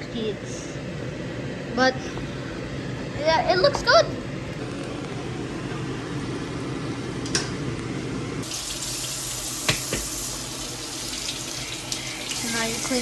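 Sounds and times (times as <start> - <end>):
tap running into sink: 9.6 - 10.2.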